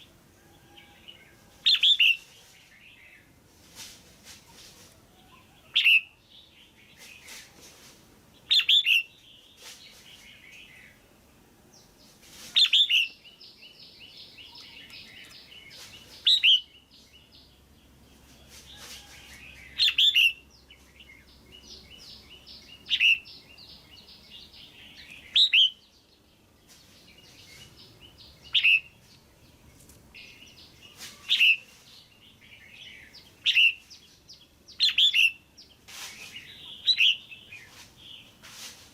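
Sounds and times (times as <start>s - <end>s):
bird calling: 12.6s - 16.8s, 19.7s - 25.9s, 27.3s - 29.0s, 30.2s - 31.8s, 32.7s - 34.0s, 36.1s - 38.2s.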